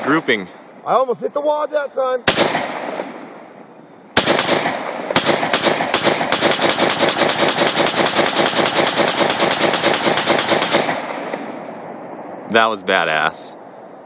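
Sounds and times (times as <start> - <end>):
rifle gunshots: 2.2 - 11.9.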